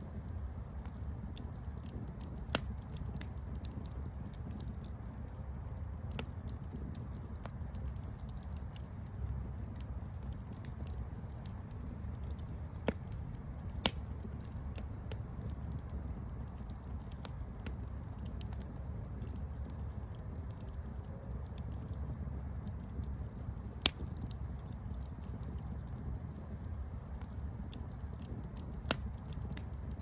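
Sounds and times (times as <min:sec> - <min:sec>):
campfire pops: 0:00.0 - 0:30.0
campfire rumble and crackles: 0:00.0 - 0:30.0.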